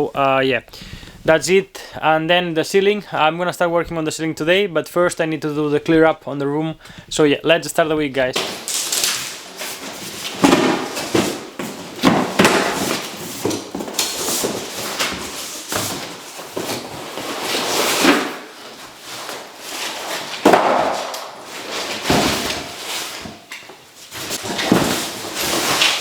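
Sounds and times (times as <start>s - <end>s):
objects knocking and clattering: 8.4s - 26.0s.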